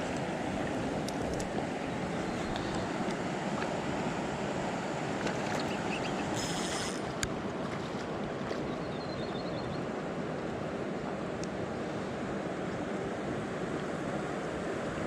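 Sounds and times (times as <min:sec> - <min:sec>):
water rushing: 0:00.0 - 0:08.9.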